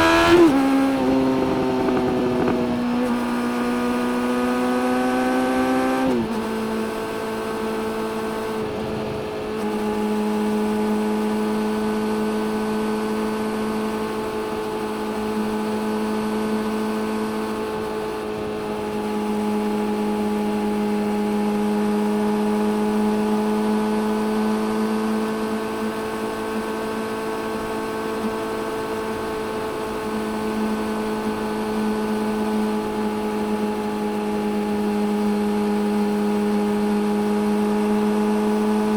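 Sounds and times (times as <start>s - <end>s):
motorcycle engine: 0.0s - 38.9s.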